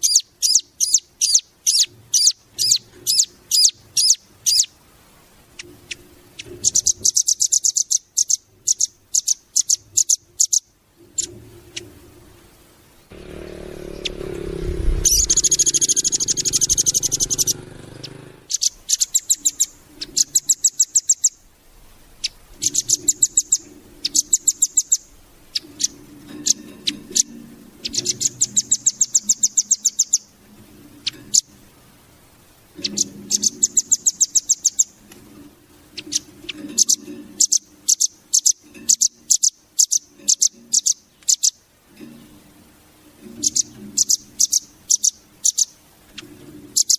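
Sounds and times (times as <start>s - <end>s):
bird singing high trills: 0.0s - 4.8s, 5.9s - 11.3s, 13.0s - 21.4s, 22.2s - 30.3s, 32.8s - 35.0s, 36.0s - 41.6s, 43.4s - 46.9s
low rumble: 13.1s - 18.3s.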